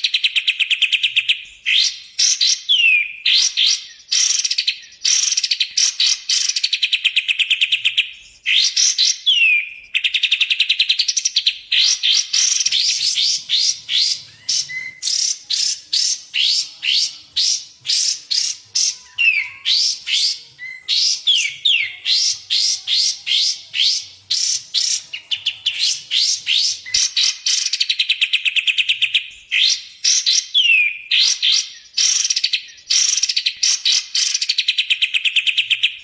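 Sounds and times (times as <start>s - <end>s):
bird whistled notes: 8.5s - 28.8s.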